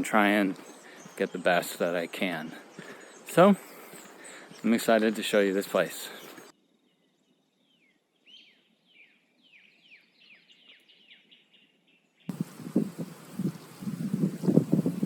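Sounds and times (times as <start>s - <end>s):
wind buffeting microphone: 12.3s - 15.0s.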